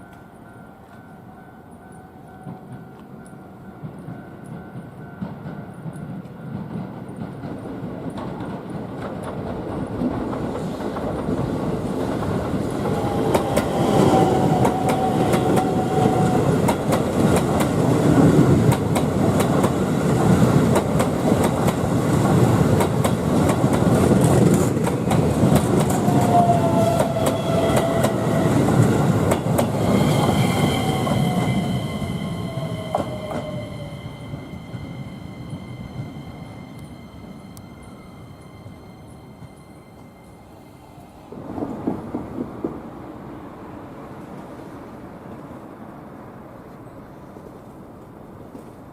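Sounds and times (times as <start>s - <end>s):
electric train passing: 0.0s - 47.1s
thin high tone: 29.7s - 41.3s.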